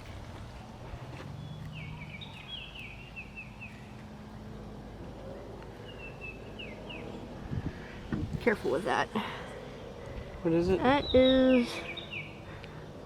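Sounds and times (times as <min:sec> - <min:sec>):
songbird singing high notes: 0:01.4 - 0:04.0, 0:10.8 - 0:12.4.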